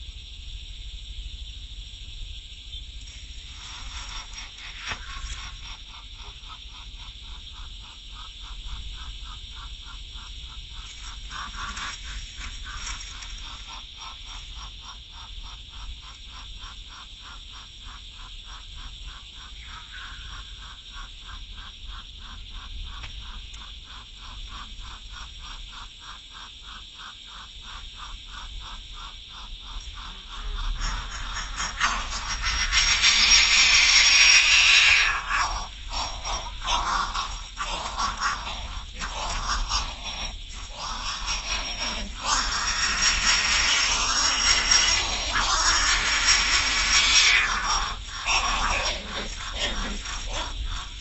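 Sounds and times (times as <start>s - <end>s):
constant high hiss: 0.0s - 51.0s
animal calling in pulsing trill: 30.1s - 51.0s.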